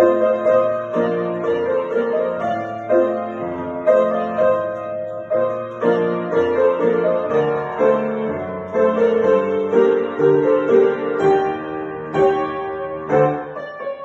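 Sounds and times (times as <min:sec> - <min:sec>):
solo piano dance piece: 0:00.0 - 0:14.0.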